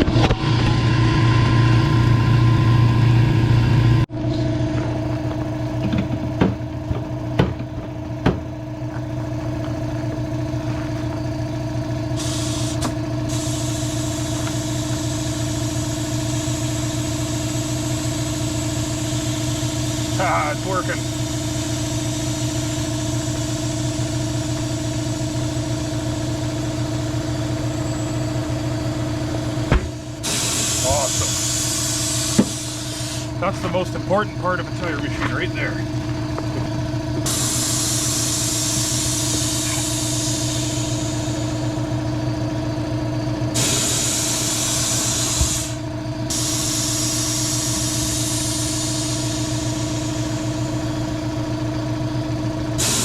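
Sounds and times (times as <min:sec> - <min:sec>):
machine motor humming: 0:00.0 - 0:53.0
compressed air hissing: 0:12.0 - 0:34.2, 0:37.2 - 0:42.1, 0:43.4 - 0:51.2, 0:52.6 - 0:53.0.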